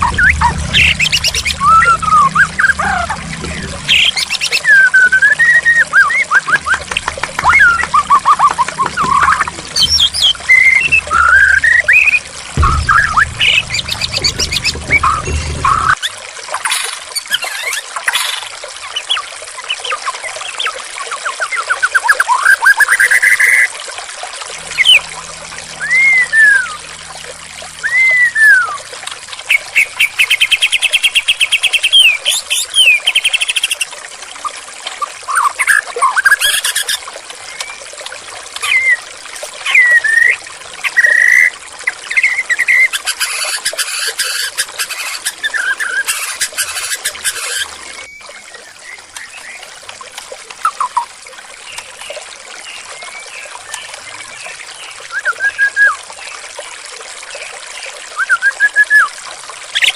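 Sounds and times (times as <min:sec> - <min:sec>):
songbird whistling and trilling: 0:00.0 - 0:03.0, 0:03.9 - 0:06.8, 0:07.4 - 0:16.0, 0:27.8 - 0:28.9, 0:29.5 - 0:33.8, 0:55.1 - 0:56.0, 0:58.2 - 0:59.1
running water trickling: 0:00.0 - 0:59.9.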